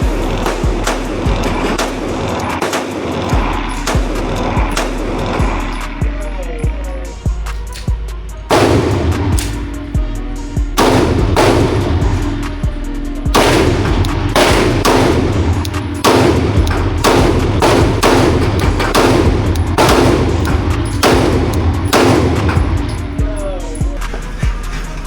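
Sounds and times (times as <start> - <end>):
pistol shots with echo: 0.0 - 6.0, 7.7 - 9.9, 10.8 - 12.7, 13.3 - 23.2.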